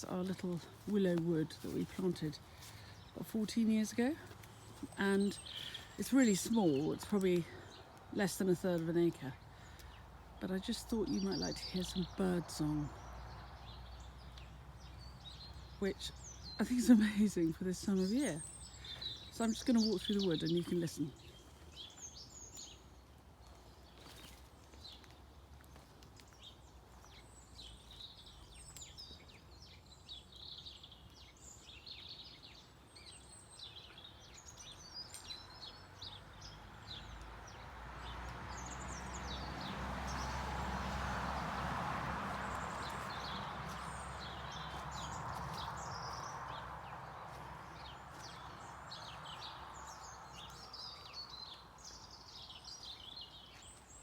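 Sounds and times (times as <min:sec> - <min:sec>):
small birds singing and calling: 0:00.0 - 0:54.0.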